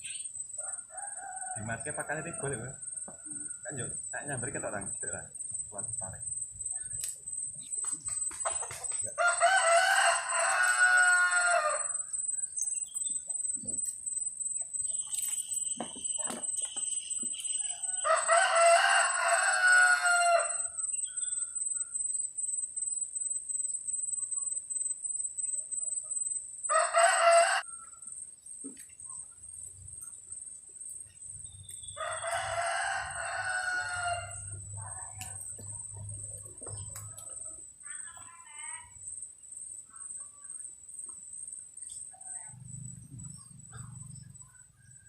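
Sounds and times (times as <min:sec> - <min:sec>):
rooster crowing: 0:00.6 - 0:04.0, 0:08.5 - 0:12.4, 0:17.3 - 0:21.3, 0:26.7 - 0:28.0, 0:31.8 - 0:37.3.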